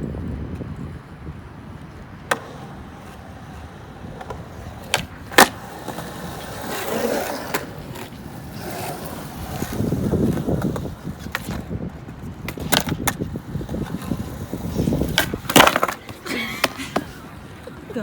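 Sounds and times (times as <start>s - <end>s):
skateboard wheels rumbling: 0.0s - 18.0s
skateboard clacks: 0.2s - 18.0s.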